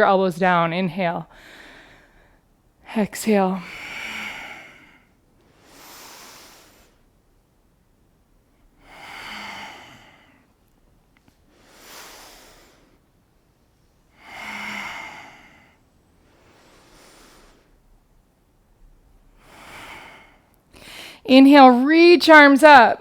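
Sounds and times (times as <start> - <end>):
person breathing slowly: 1.3 - 2.5, 3.6 - 7.1, 8.6 - 10.8, 11.4 - 13.2, 14.0 - 17.9, 19.2 - 21.3.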